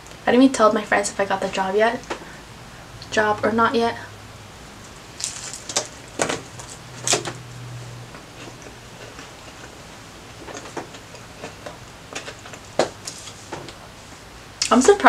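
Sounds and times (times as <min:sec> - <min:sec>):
biting into sandwich crunches: 0:05.2 - 0:07.3.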